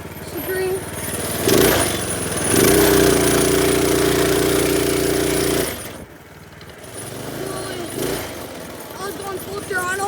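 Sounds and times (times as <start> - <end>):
small engine at full throttle: 0.0 - 10.0.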